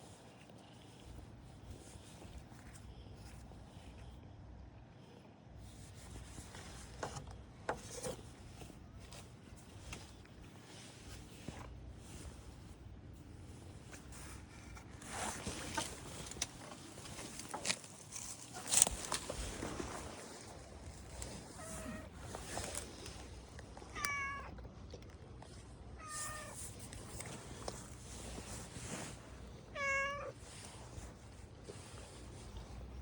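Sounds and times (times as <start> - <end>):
rustling and scraping: 0.0 - 4.2, 5.6 - 24.4, 25.4 - 33.0.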